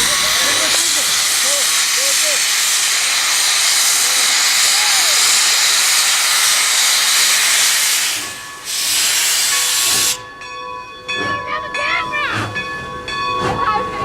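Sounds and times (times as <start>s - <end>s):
steam locomotive hissing steam: 0.0s - 10.4s.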